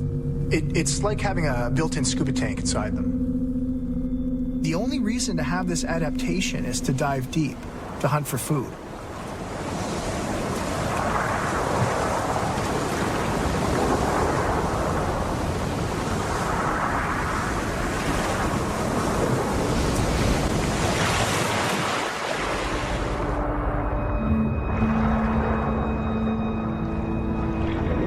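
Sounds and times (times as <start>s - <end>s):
ocean surf rushing: 6.3s - 28.0s.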